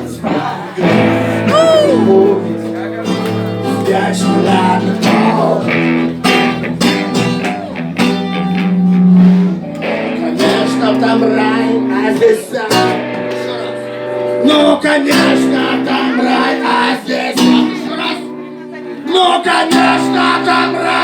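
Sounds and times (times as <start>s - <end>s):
strummed acoustic guitar: 0.0s - 21.0s
person singing: 0.2s - 2.8s, 3.5s - 6.2s, 9.9s - 18.4s.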